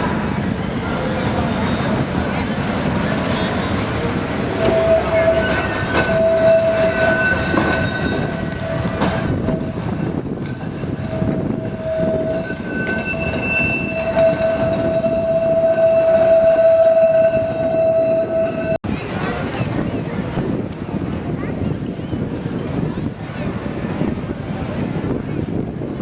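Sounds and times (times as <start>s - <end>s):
high tram tone: 0.0s - 18.8s
tram rumbling on track: 0.0s - 26.0s.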